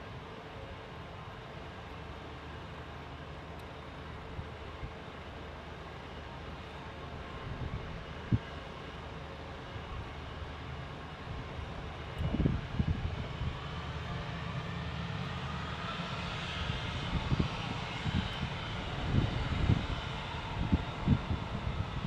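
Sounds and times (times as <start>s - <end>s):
jet engines rushing: 0.0s - 22.0s
wind buffeting microphone: 7.2s - 8.6s, 11.3s - 14.5s, 15.5s - 22.0s.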